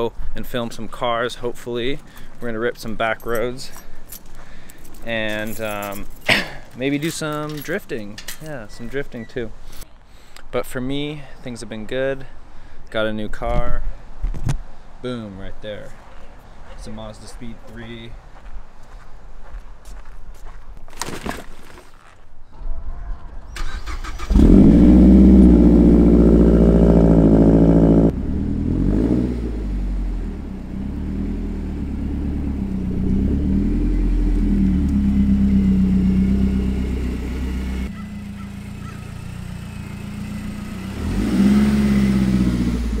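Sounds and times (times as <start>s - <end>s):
car engine revving: 23.6s - 43.0s.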